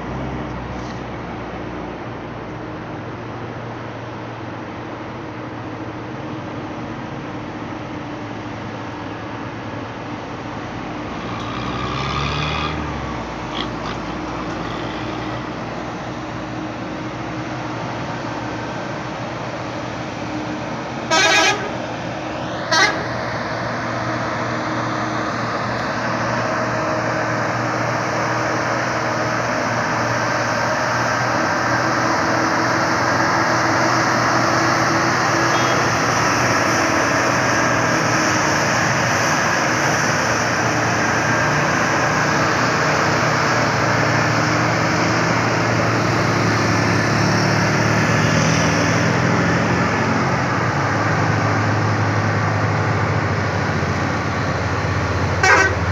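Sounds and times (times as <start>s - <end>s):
heavy truck engine under load: 0.0s - 55.9s
truck horn blasts: 21.1s - 23.6s, 35.4s - 36.8s, 55.2s - 55.9s.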